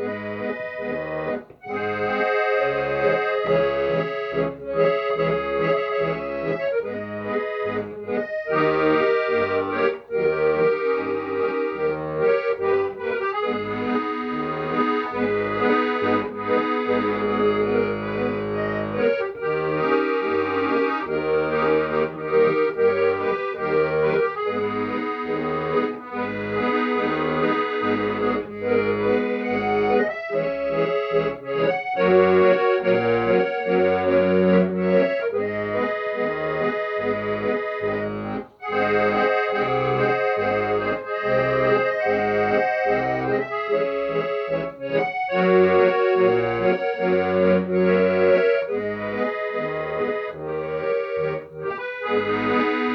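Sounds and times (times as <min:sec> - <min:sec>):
accordion melody: 0:00.0 - 0:52.9.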